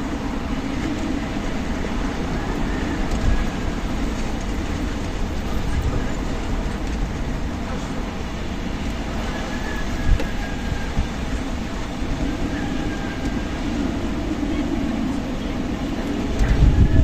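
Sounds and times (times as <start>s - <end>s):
strong wind blowing: 0.0s - 17.0s.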